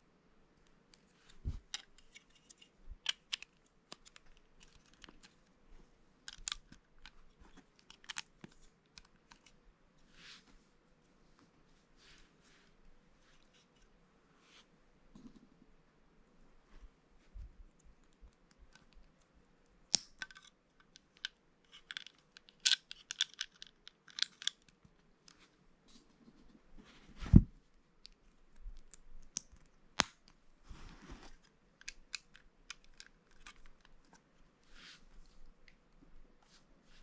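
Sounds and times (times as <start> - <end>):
plastic bricks clicking and clattering: 20.2 - 24.6.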